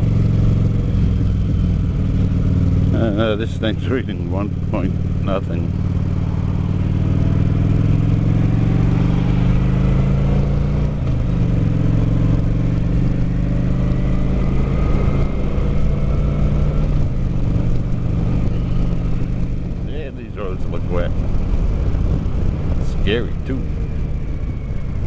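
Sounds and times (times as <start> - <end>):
motorcycle engine pulling hard: 0.0 - 25.0
wind rush: 6.2 - 25.0.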